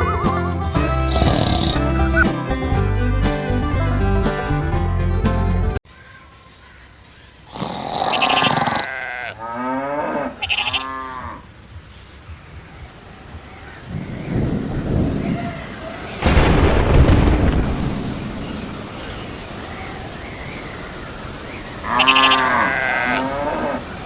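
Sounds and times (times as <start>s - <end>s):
cattle mooing: 8.1s - 11.4s, 21.8s - 23.9s
loud rumble like thunder: 13.8s - 20.1s.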